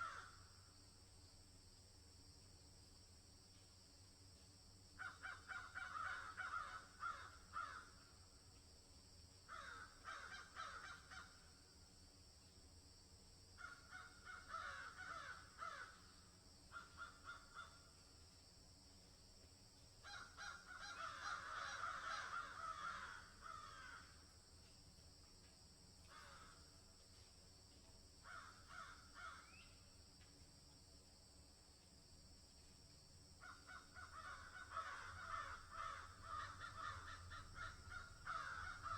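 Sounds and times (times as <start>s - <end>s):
crows cawing: 0.0s - 0.5s, 5.0s - 8.2s, 9.5s - 11.5s, 13.6s - 18.0s, 20.0s - 24.3s, 26.0s - 26.8s, 28.2s - 29.6s, 33.4s - 38.9s.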